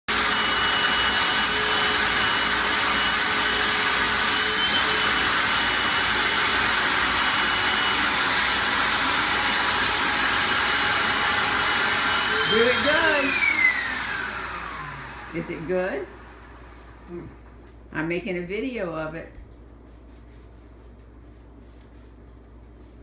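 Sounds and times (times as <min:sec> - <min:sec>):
vacuum cleaner running: 0:00.1 - 0:17.2.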